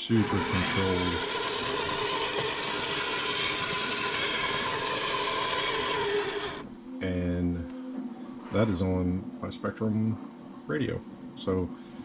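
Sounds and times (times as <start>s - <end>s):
electric motors whirring: 0.0s - 6.7s.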